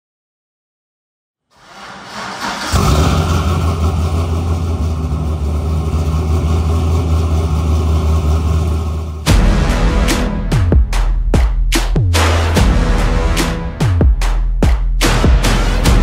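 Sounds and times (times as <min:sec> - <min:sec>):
car engine starting and idling: 0:01.6 - 0:11.2.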